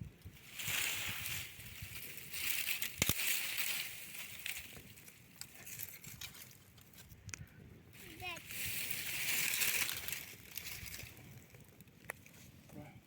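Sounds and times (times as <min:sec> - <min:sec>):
crumpling crushing noise: 0:08.5 - 0:12.4.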